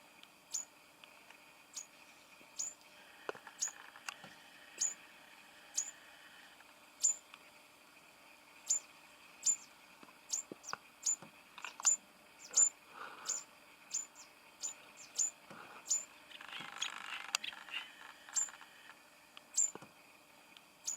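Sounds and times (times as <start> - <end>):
buzzy bird chatter: 0.5 - 0.7, 1.7 - 2.8, 3.4 - 4.1, 4.7 - 5.0, 5.7 - 6.0, 7.0 - 7.2, 8.6 - 18.9, 19.5 - 19.8
bird high-pitched chips: 1.7 - 1.9, 2.6 - 2.8, 3.5 - 3.8, 4.8 - 5.0, 5.8 - 6.0, 7.0 - 7.2, 8.6 - 9.7, 10.3 - 18.6, 19.5 - 19.8.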